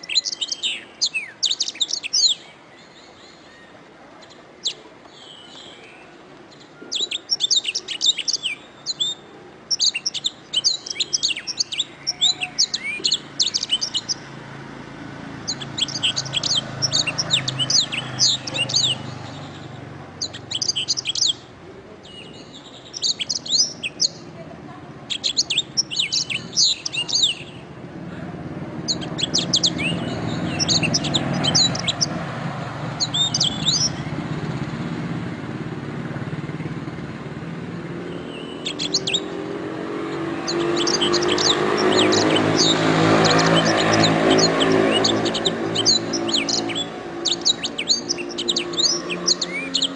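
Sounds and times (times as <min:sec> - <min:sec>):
canary singing: 0:00.0 - 0:24.4, 0:25.0 - 0:27.8, 0:28.4 - 0:34.8, 0:36.4 - 0:49.9.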